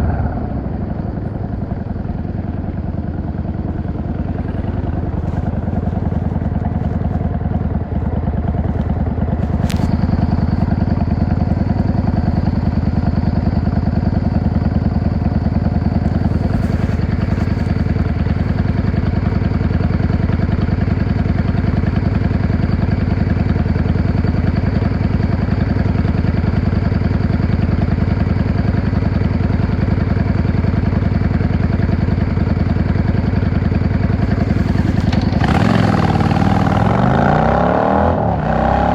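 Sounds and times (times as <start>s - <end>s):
faint high whine: 0.0s - 19.4s
motorcycle engine cruising: 0.0s - 38.9s.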